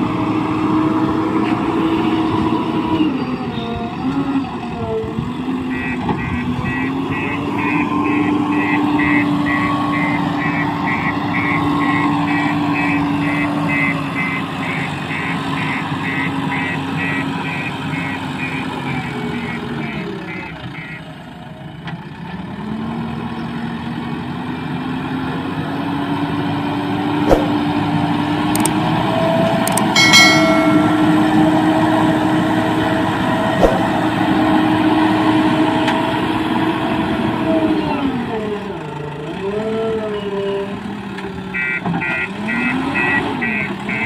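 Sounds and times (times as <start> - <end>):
diesel engine under load: 0.0 - 44.0
ringing metallic clang: 30.0 - 31.7.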